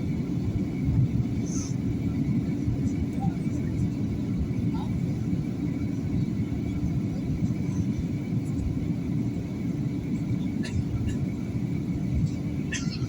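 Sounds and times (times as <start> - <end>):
engine and airflow rumble: 0.0 - 13.0.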